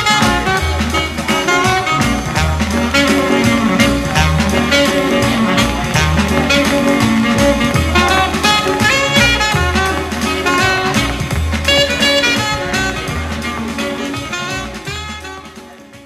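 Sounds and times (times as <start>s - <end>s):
instrumental music with bass line: 0.0s - 16.0s.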